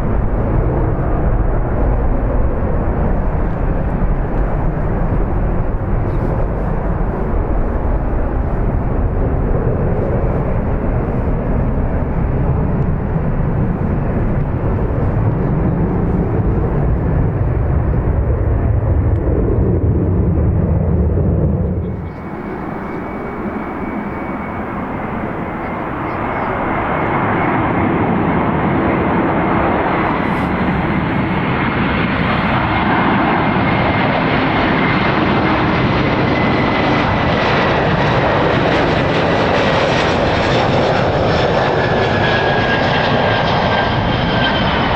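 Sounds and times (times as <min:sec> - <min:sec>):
airliner engine noise: 0:00.0 - 0:44.9
wind rumbling on microphone: 0:00.0 - 0:44.9
faint high whine: 0:21.8 - 0:27.5.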